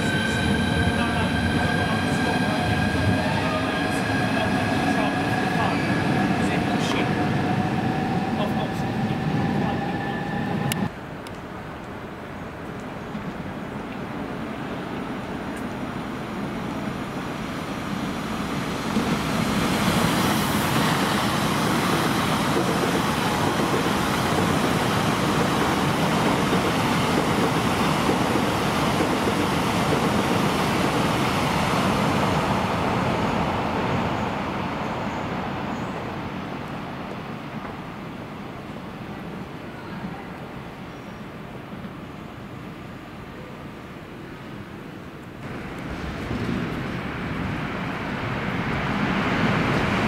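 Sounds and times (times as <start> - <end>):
train wheels rumbling past: 45.4 - 50.0.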